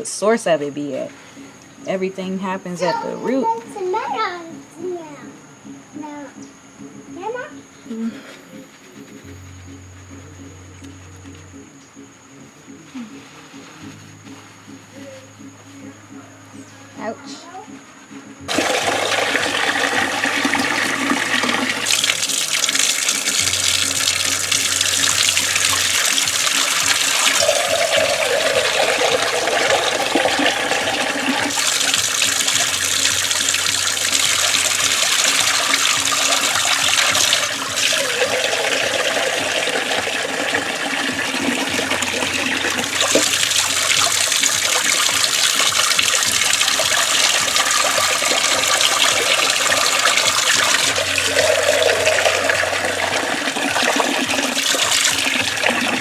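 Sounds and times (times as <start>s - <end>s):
tap water running and splashing: 18.5s - 56.0s.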